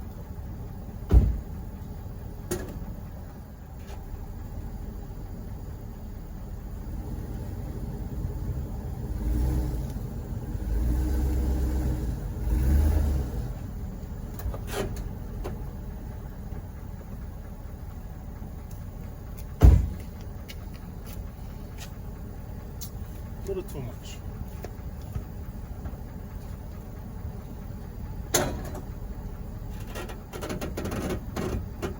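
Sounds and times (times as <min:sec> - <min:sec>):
truck engine running: 0:00.0 - 0:31.9
sharp thump: 0:01.1 - 0:01.5, 0:19.6 - 0:20.0.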